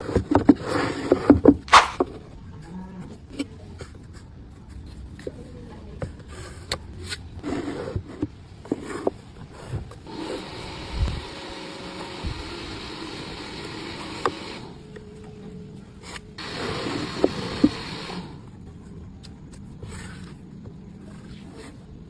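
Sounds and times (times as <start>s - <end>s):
wood and hand tools clicking: 16.4s - 18.2s.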